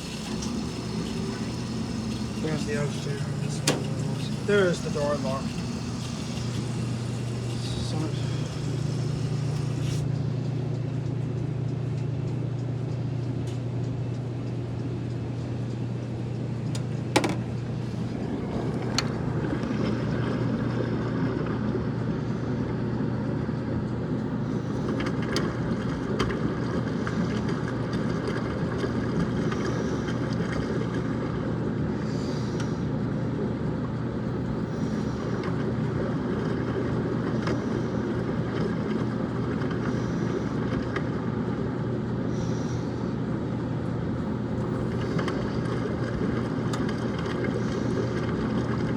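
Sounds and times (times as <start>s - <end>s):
washing machine click: 0.0s - 9.9s, 16.6s - 19.7s
rushing water noise: 0.0s - 10.0s, 17.2s - 21.2s
washing machine hum: 0.0s - 48.9s.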